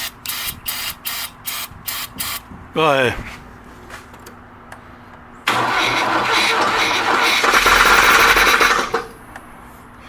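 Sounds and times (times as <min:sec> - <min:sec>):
car engine cranking on starter: 0:05.5 - 0:09.3.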